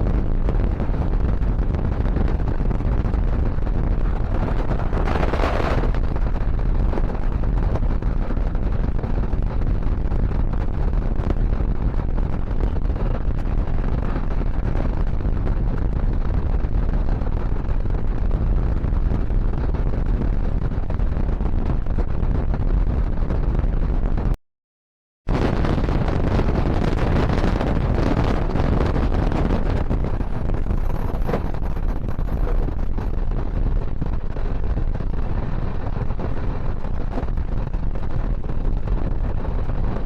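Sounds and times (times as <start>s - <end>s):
train rumbling at speed: 1.8s - 10.3s, 26.4s - 37.5s.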